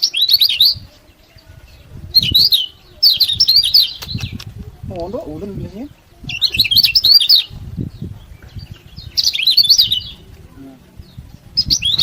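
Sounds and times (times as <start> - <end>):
bird giving high chirps: 0.0 - 4.6, 5.4 - 10.3, 11.0 - 12.0.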